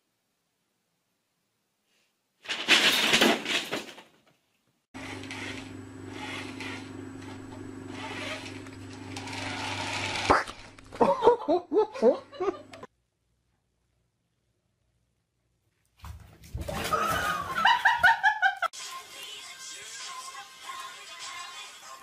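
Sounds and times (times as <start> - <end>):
small motor humming with hiss: 5.0 - 10.7.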